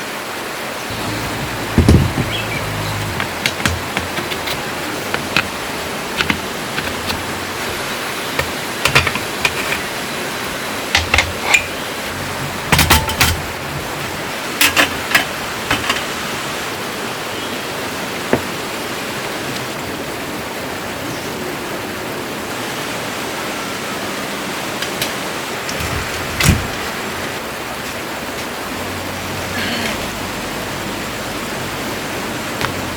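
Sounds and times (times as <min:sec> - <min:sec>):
running water rushing: 0:00.0 - 0:32.9
sharp clicks and knocks: 0:00.9 - 0:07.8, 0:08.4 - 0:09.9, 0:10.9 - 0:14.0, 0:14.6 - 0:16.2.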